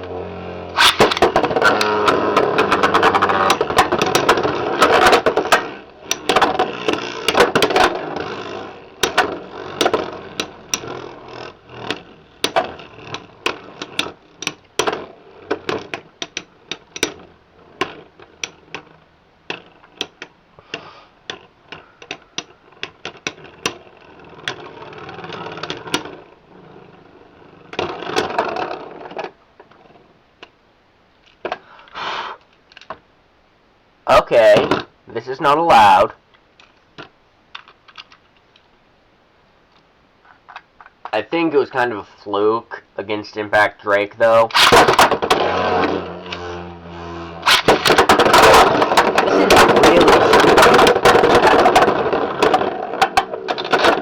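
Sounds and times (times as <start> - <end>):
spinning tops grinding whir: 0.0 - 30.0, 44.2 - 54.0
spinning tops clicking: 0.7 - 20.4, 44.5 - 54.0.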